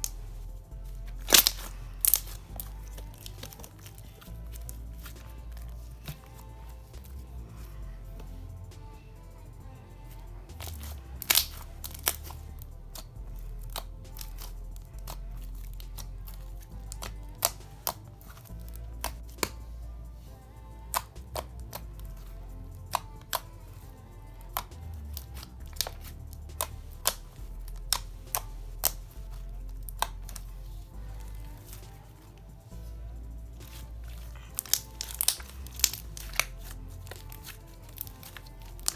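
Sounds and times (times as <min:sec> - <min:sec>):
background music: 0:00.0 - 0:38.9
slime clicks and pops: 0:10.6 - 0:12.3.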